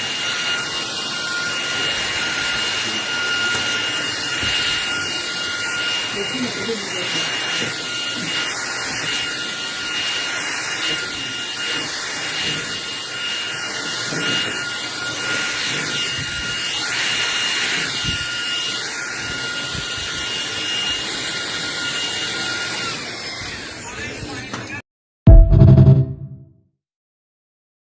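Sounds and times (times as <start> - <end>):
vacuum cleaner running: 0.0 - 24.5.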